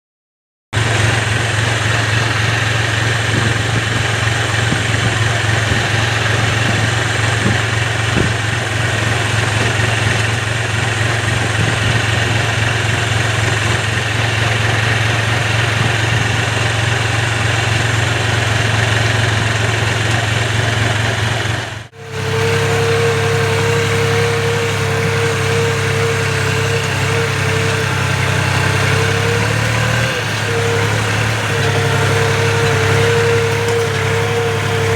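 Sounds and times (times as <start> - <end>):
tractor diesel engine running: 0.8 - 34.9
steady higher whine: 21.4 - 34.9.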